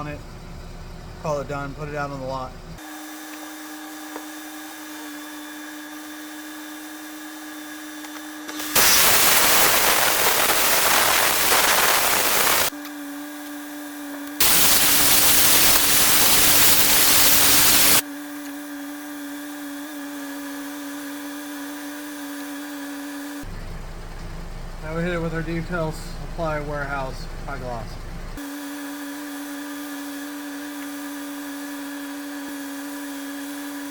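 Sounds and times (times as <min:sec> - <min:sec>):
steady mechanical hum: 0:00.0 - 0:02.9, 0:23.4 - 0:28.5
loud hissing blasts: 0:08.6 - 0:12.7, 0:14.4 - 0:18.0.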